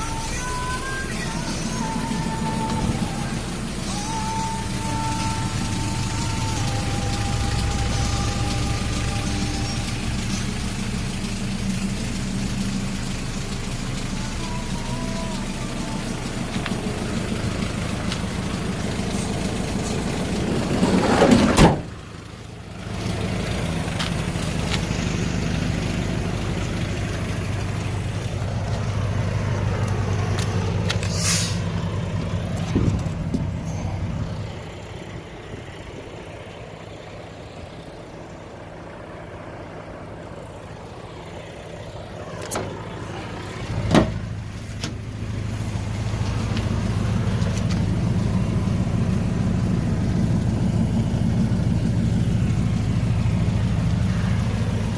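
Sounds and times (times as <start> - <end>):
diesel engine running: 0.0 - 54.9
loud thump: 21.3 - 21.9, 43.9 - 44.2.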